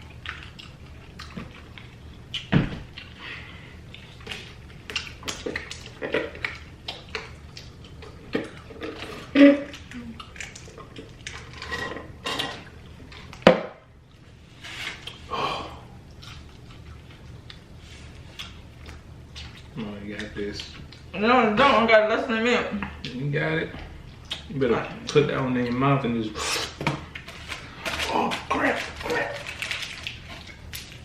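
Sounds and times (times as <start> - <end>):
wet chewing and lip smacking: 0.0 - 3.2, 3.8 - 11.5, 16.0 - 21.1, 24.1 - 24.5.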